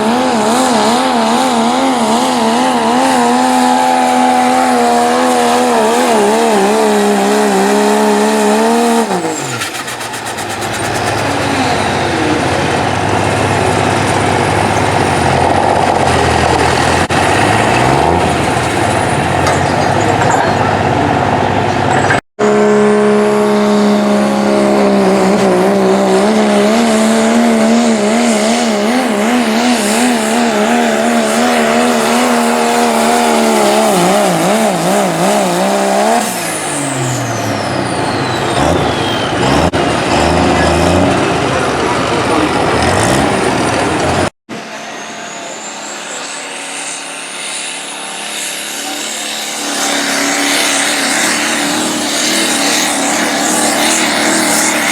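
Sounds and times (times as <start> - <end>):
diesel engine running hard: 0.0 - 54.9
second engine at high rpm: 0.0 - 54.9.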